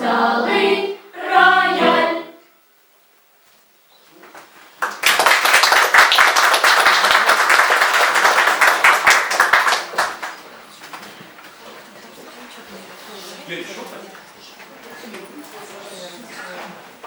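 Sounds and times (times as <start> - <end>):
audience applauding: 4.8 - 10.5.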